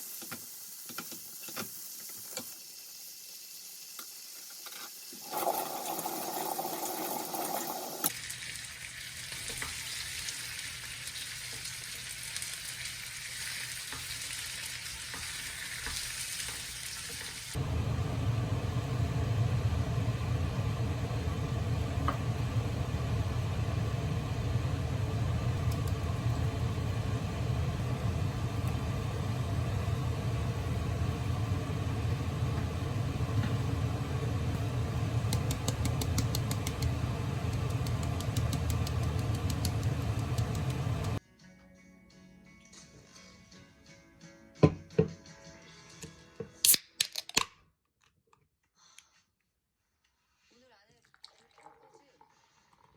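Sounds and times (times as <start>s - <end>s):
food sizzling in a frying pan: 0.0s - 20.2s
steady low hum: 17.6s - 41.2s.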